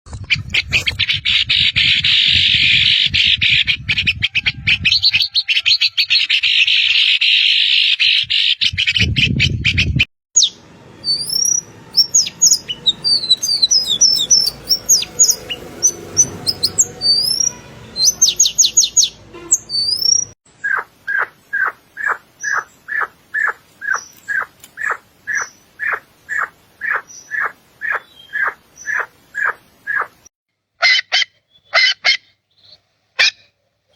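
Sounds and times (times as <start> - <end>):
whistled birdsong: 10.4 - 30.1, 31.4 - 33.9
birds chattering: 10.4 - 30.2.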